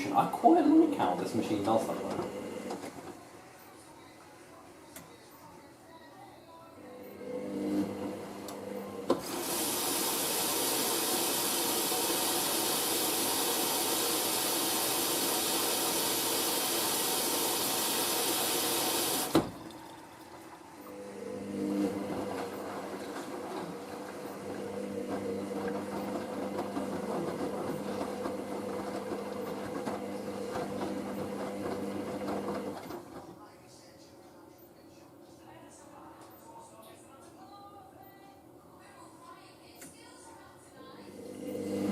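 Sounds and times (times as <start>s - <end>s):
washing machine drum motor humming: 0.0s - 3.4s, 7.0s - 33.4s, 41.1s - 41.9s
water rushing through inlet valve: 9.1s - 32.7s.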